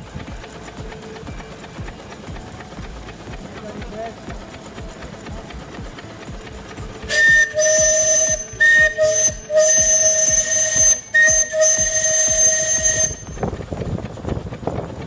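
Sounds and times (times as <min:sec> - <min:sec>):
old engine knocking: 0:00.0 - 0:15.0
steam whistle blasts: 0:07.1 - 0:13.4.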